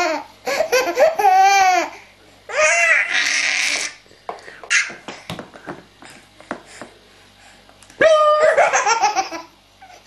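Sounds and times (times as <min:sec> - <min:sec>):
baby laughing: 0:00.0 - 0:03.8, 0:08.3 - 0:10.0.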